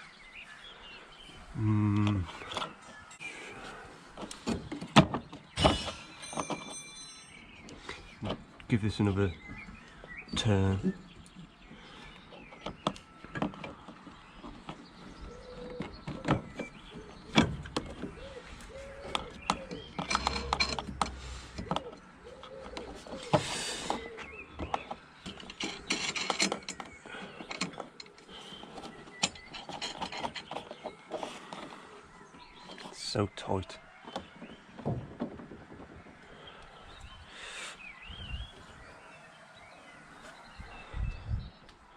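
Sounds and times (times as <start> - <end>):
metal clicks: 17.3 - 22.9.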